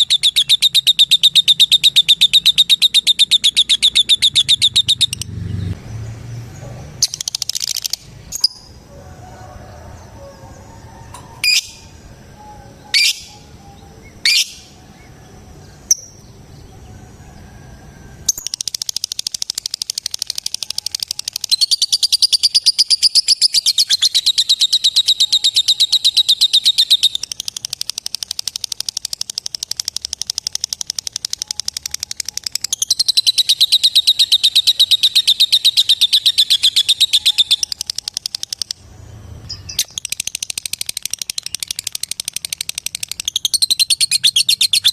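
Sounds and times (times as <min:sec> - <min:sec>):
lovebird chattering trill: 0:00.0 - 0:05.3, 0:07.0 - 0:08.8, 0:11.4 - 0:14.8, 0:18.3 - 0:38.8, 0:39.5 - 0:44.9
lovebird sharp calls: 0:00.0 - 0:05.3, 0:11.4 - 0:14.8, 0:18.3 - 0:38.8, 0:39.5 - 0:44.9.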